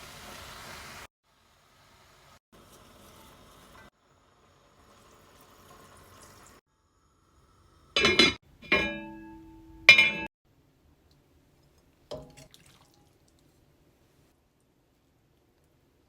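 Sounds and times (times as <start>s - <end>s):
kitchenware clanking: 8.0s - 10.3s
faint liquid sounds: 10.8s - 16.0s.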